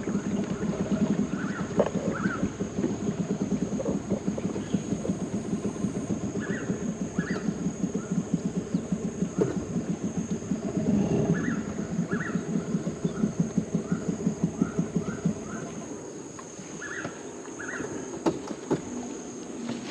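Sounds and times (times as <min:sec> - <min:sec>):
small engine puttering: 0:00.0 - 0:16.2
insect drone: 0:00.0 - 0:19.9
bird chirps: 0:11.3 - 0:15.8, 0:16.8 - 0:18.1.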